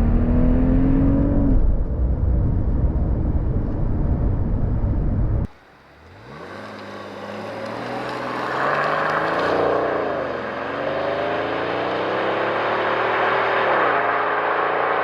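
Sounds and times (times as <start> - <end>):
car engine accelerating hard: 0.0 - 2.2, 5.5 - 15.0.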